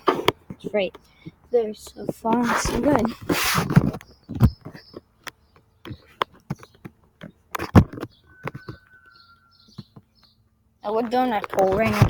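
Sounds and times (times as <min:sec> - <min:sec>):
faint bird chirps: 0:03.9 - 0:11.0.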